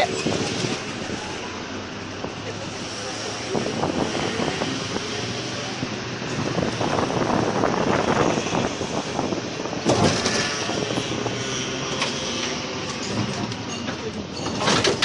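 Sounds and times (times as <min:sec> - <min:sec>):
train engine hum: 0:00.0 - 0:10.0
street noise: 0:00.0 - 0:15.0
train clatter: 0:12.0 - 0:15.0.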